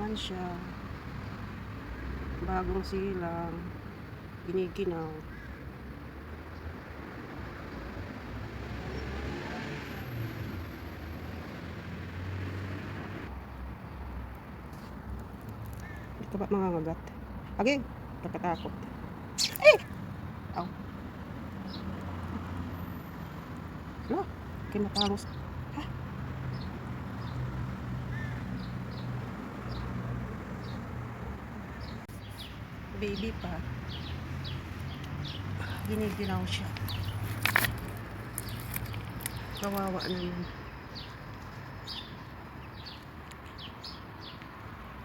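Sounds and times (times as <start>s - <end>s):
distant road traffic rumble: 0.0s - 45.0s
young bird cheeping: 19.4s - 19.9s, 24.1s - 25.2s.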